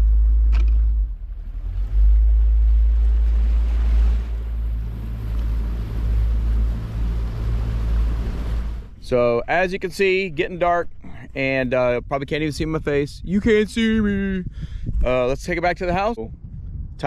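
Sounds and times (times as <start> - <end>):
boat motor rumbling: 0.0 - 11.9
wind buffeting microphone: 1.5 - 17.0.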